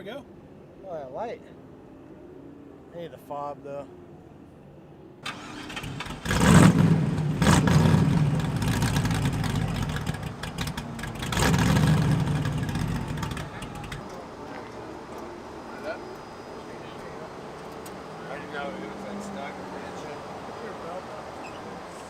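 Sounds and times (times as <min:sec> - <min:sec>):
race car engine revving: 0:05.3 - 0:22.0.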